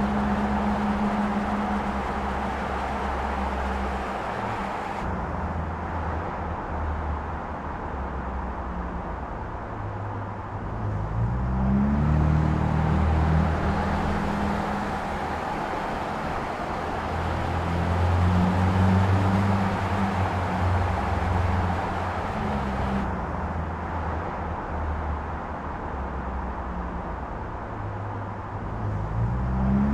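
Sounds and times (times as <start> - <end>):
car engine running: 0.0 - 5.1, 12.5 - 23.1
road noise: 0.0 - 29.9.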